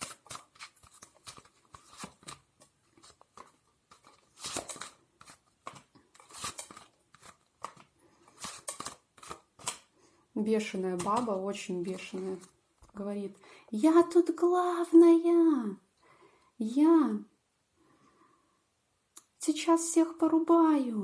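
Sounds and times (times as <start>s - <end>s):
cards rustling: 0.0s - 9.9s, 11.0s - 13.0s
cards shuffling: 0.0s - 9.9s, 11.0s - 13.0s.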